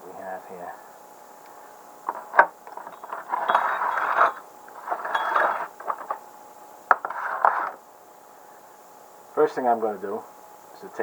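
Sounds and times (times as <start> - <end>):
small metal parts clinking: 2.1 - 6.2.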